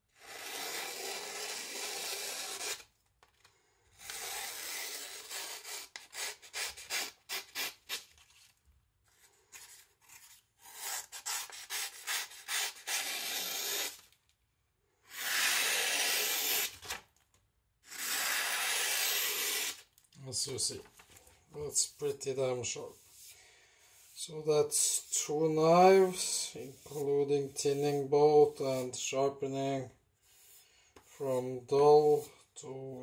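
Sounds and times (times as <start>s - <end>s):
knife scraping strokes: 0.2s - 2.9s, 4.0s - 8.5s, 9.6s - 14.0s, 22.8s - 29.1s, 30.2s - 31.2s.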